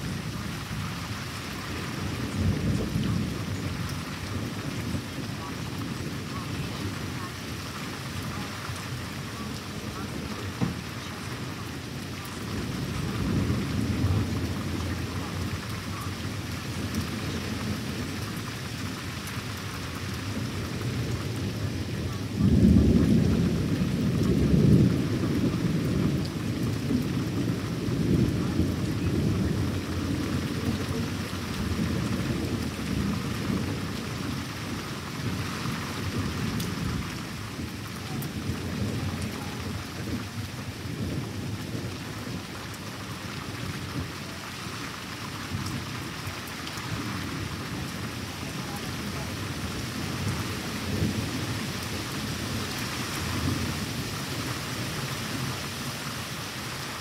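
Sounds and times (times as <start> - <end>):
rolling thunder: 0.0 - 44.4, 45.4 - 55.6
steady rain falling: 0.0 - 57.0.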